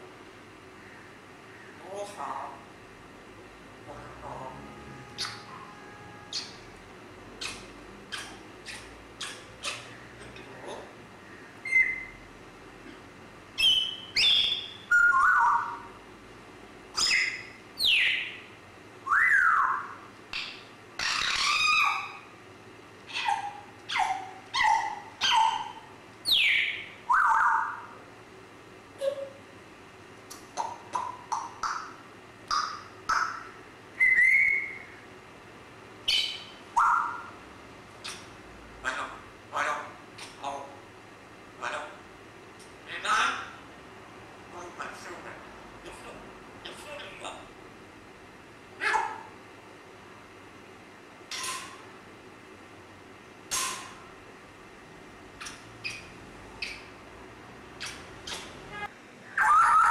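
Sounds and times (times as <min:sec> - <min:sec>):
parrot whistling and calling: 0:05.1 - 0:06.8, 0:07.4 - 0:10.0, 0:11.6 - 0:12.2, 0:13.6 - 0:16.0, 0:17.0 - 0:22.3, 0:23.1 - 0:28.0, 0:30.6 - 0:35.0, 0:36.0 - 0:37.4, 0:38.0 - 0:38.3, 0:51.3 - 0:51.8, 0:55.4 - 0:56.9, 0:57.8 - 0:59.9.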